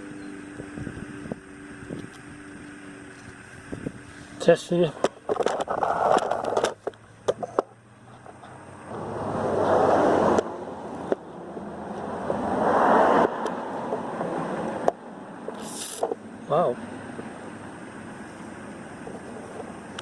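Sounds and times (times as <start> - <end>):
aerosol spray can hissing: 15.6 - 16.0.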